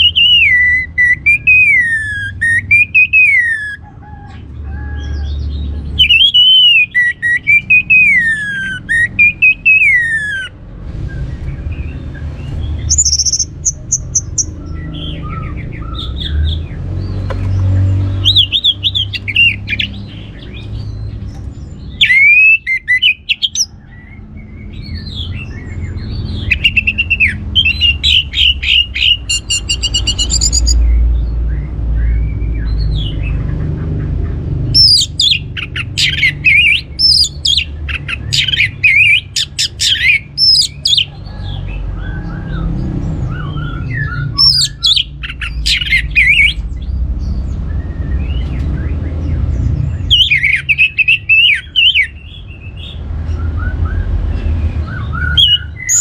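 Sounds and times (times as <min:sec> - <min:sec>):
thrush singing: 0:00.0 - 0:03.8, 0:05.3 - 0:10.6, 0:17.6 - 0:33.8, 0:34.6 - 0:49.1
low rumble: 0:10.5 - 0:18.3.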